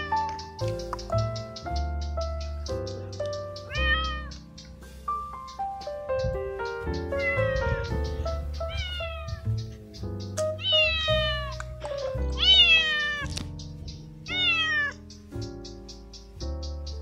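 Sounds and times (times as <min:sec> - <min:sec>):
background keyboard music: 0:00.0 - 0:17.0
cat meowing: 0:03.6 - 0:04.4, 0:07.0 - 0:09.5, 0:10.6 - 0:11.8, 0:12.4 - 0:13.4, 0:14.3 - 0:15.0.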